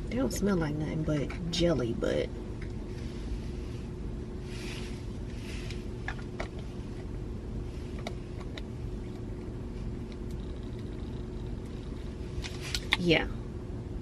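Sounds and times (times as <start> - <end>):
car cabin rumble: 0.0 - 14.0
faint steady hum: 0.0 - 14.0
soft rustles: 2.7 - 11.0, 11.6 - 13.1.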